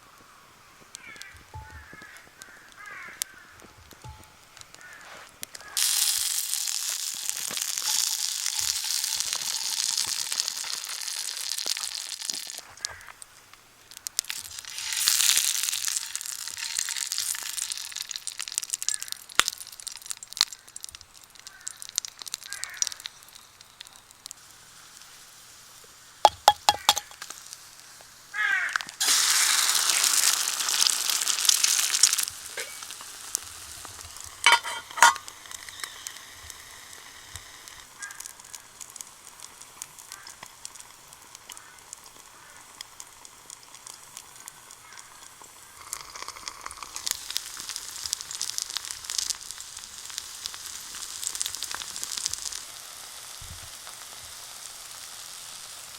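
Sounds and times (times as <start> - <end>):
campfire crackling: 0.0 - 55.9
food sizzling in a pan: 0.0 - 55.9
metal clinks: 34.5 - 35.2.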